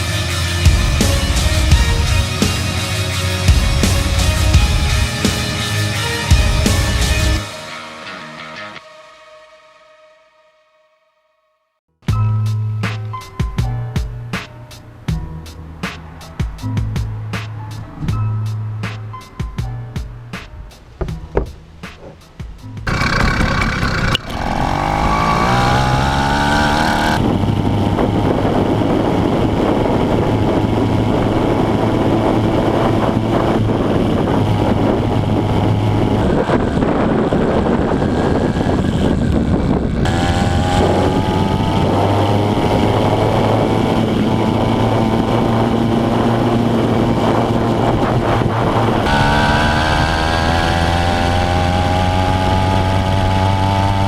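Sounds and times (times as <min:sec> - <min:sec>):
small motorized bicycle engine: 0:22.9 - 0:34.6.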